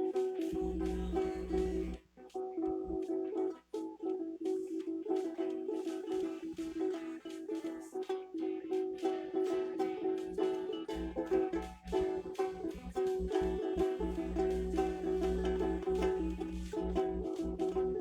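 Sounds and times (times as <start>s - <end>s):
low steady hum: 0.1s - 2.0s, 10.1s - 18.0s.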